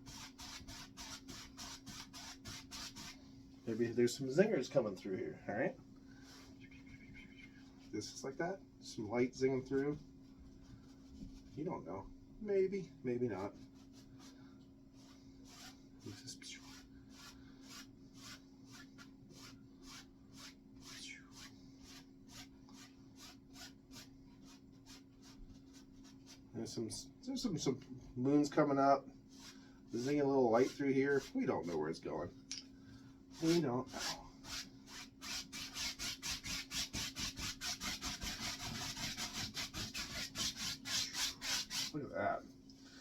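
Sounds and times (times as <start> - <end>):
paintbrush stroking canvas: 0.0 - 4.0, 13.3 - 26.5, 29.3 - 32.0, 33.3 - 42.0
faint steady hum: 0.0 - 43.0.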